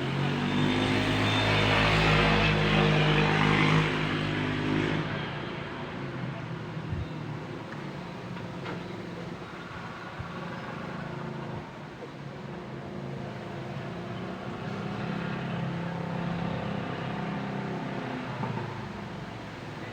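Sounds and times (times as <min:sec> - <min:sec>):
road traffic engines droning: 0:00.0 - 0:19.9.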